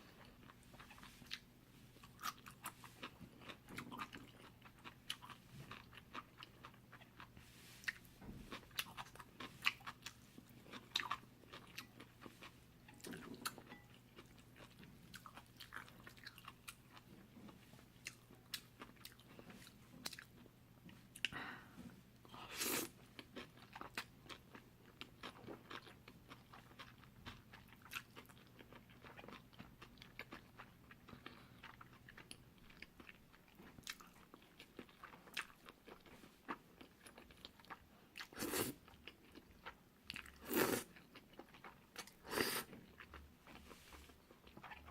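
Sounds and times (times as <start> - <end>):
chewing noodles: 0.0 - 20.5, 22.6 - 44.9.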